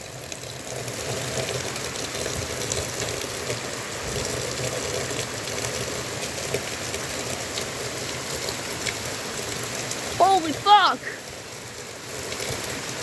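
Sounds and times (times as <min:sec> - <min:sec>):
heavy rain pouring: 0:00.6 - 0:13.0.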